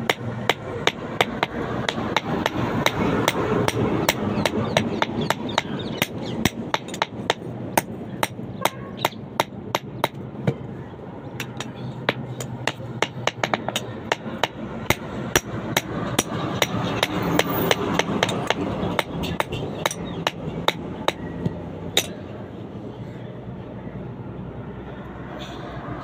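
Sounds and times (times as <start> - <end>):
hammer striking metal: 11.4 - 21.3, 21.9 - 22.2.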